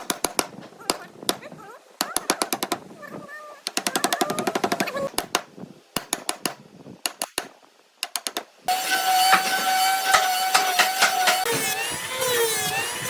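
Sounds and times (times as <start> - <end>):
sharp taps and clicks: 3.6 - 8.5
power tool whining: 8.7 - 13.0.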